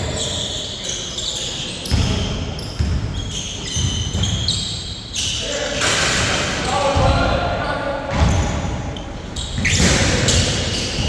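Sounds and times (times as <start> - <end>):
shoe squeaks: 0.0 - 6.0, 8.3 - 11.0
basketball bouncing on a court: 1.9 - 4.6, 8.1 - 8.8.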